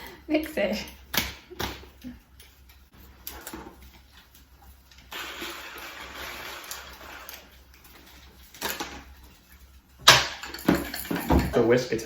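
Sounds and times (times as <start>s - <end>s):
electric hand mixer whirring: 5.1s - 7.4s.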